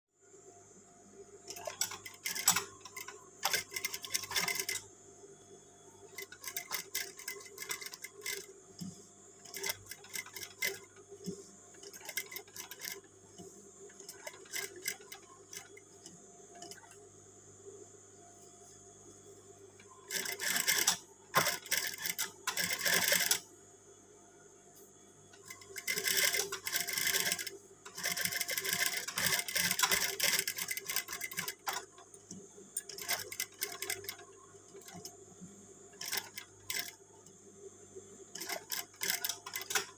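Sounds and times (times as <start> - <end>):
faint steady hum: 0.2 - 39.9
sewing machine stitching: 1.5 - 4.8, 6.1 - 11.0, 11.8 - 13.1, 14.0 - 15.8, 20.1 - 23.4, 25.5 - 32.0, 32.8 - 35.1, 35.9 - 37.0, 38.3 - 39.9.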